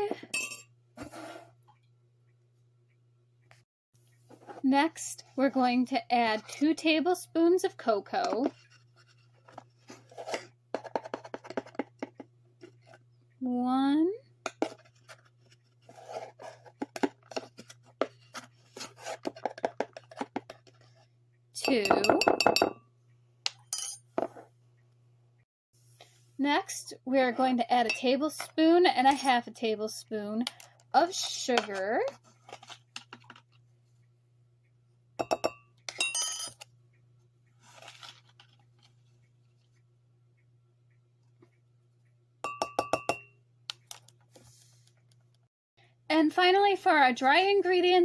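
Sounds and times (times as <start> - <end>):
spoon clinking against mug: 21.6 - 22.8, 35.2 - 36.6, 42.5 - 43.3.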